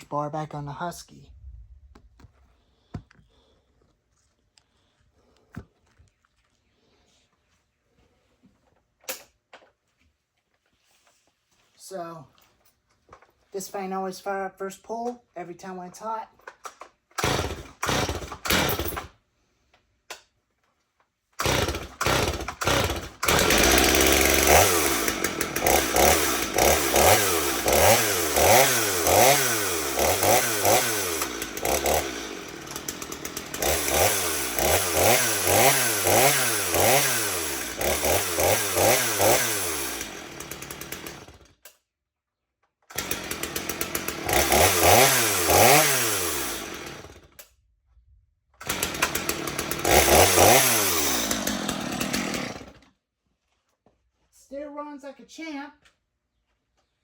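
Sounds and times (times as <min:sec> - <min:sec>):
chainsaw revving: 0:17.2 - 0:19.1, 0:21.4 - 0:41.6, 0:42.9 - 0:47.4, 0:48.6 - 0:52.9.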